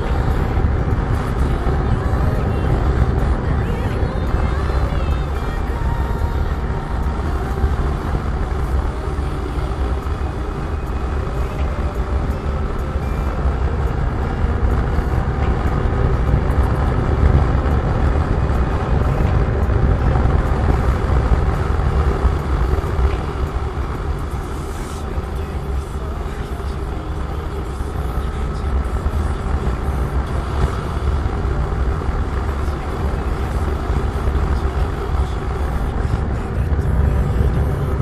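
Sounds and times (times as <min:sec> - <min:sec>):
wind rush: 0:00.0 - 0:25.8
motorcycle engine drone: 0:00.0 - 0:38.0.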